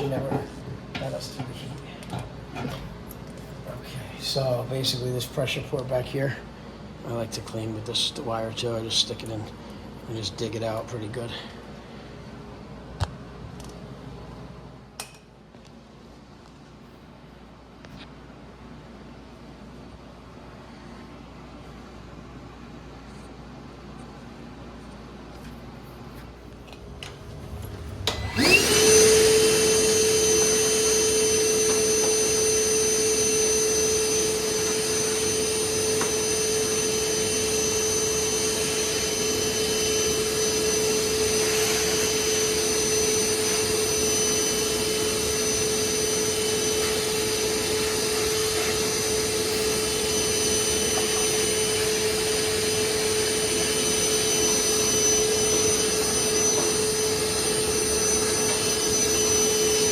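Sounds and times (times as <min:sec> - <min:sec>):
vacuum cleaner motor whining: 0:26.2 - 0:59.9.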